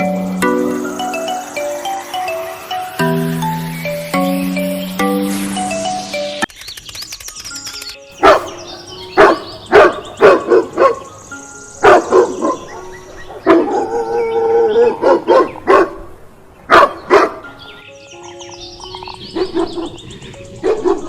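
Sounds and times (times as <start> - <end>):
dog barking: 8.2 - 11.1, 11.8 - 16.1, 16.7 - 17.5, 19.3 - 20.0, 20.6 - 21.0.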